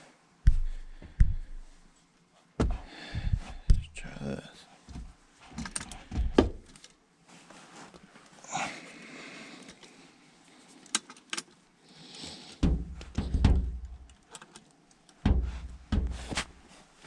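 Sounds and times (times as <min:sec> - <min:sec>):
heavy low thumps of wrench: 0:00.5 - 0:01.8, 0:02.6 - 0:04.1, 0:12.6 - 0:14.1, 0:15.2 - 0:16.4.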